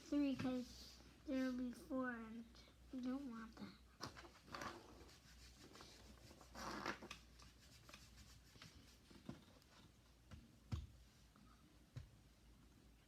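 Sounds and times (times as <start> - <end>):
modeling clay rubbing: 3.0 - 11.4
scraping rub: 4.2 - 9.6.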